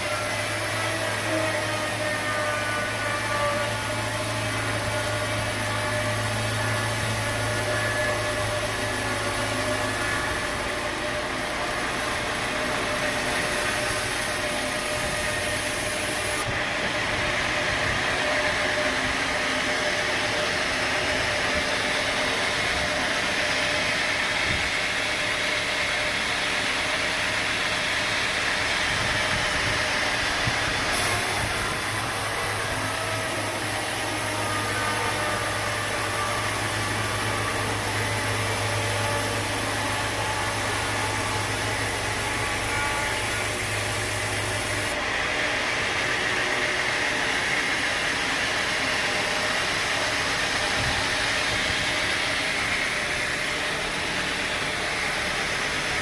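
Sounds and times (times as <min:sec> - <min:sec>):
machine whine: 0:00.0 - 0:56.0
sawmill machinery drone: 0:00.0 - 0:56.0.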